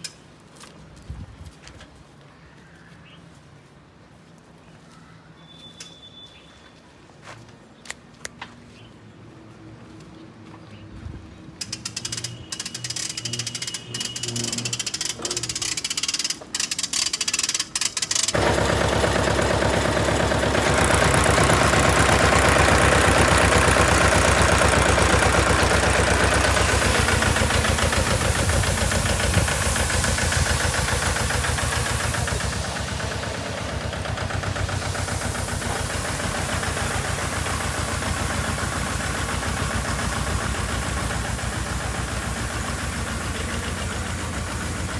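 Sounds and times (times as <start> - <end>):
sprayer pump pulsing: 11.6 - 44.9
tractor engine running: 11.6 - 44.9.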